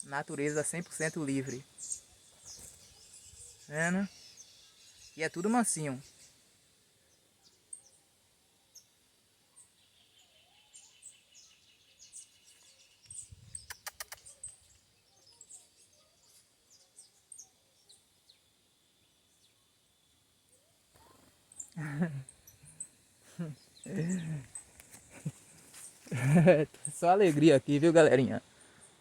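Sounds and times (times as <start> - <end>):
cluster of clicks: 13.0 - 14.6
high-pitched bird chirps: 13.1 - 15.7.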